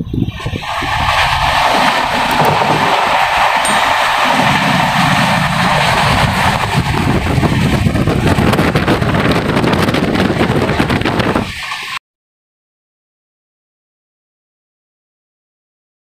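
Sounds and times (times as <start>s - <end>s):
rushing air: 0.0s - 12.0s
train wheels rumbling on rails: 0.4s - 12.0s.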